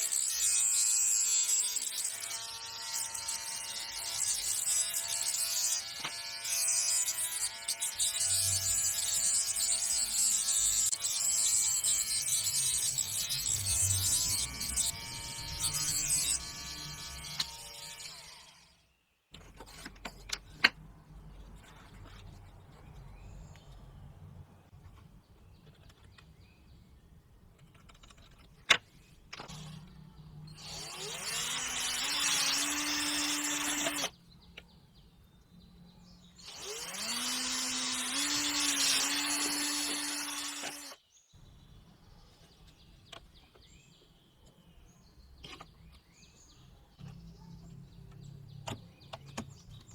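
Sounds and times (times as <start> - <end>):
string trimmer motor whine: 2.1 - 18.5, 30.5 - 34.1, 36.4 - 41.0.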